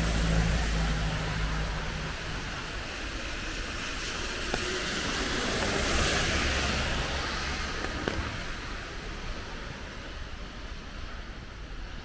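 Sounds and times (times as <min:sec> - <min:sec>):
low traffic rumble: 0:00.0 - 0:12.0
rain hiss: 0:00.0 - 0:12.0.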